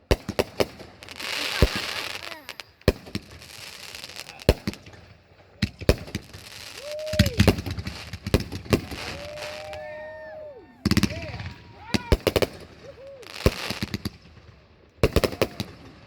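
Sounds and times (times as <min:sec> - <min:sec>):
fireworks bangs with crackle: 0:00.0 - 0:16.0
fireworks whistles: 0:00.8 - 0:04.9, 0:05.7 - 0:14.1.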